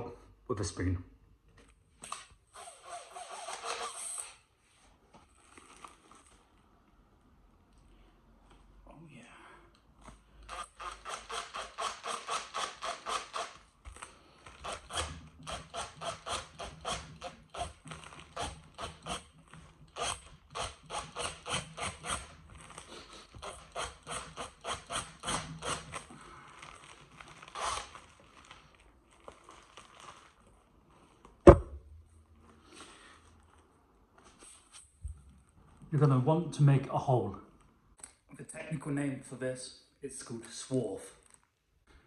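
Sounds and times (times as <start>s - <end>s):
sharp thud: 31.5s - 32.0s.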